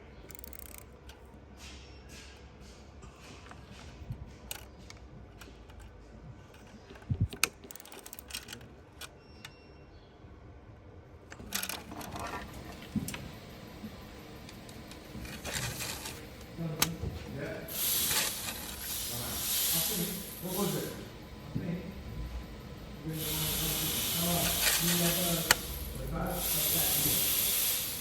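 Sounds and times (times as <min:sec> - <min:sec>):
metal tools clicking and clinking: 0:00.2 - 0:01.2.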